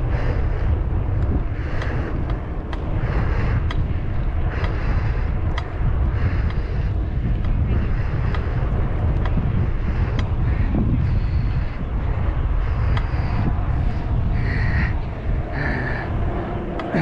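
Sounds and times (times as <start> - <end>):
low rumble: 0.0 - 17.0
wind buffeting microphone: 0.0 - 17.0
sharp ticks: 1.1 - 11.6, 12.8 - 13.2.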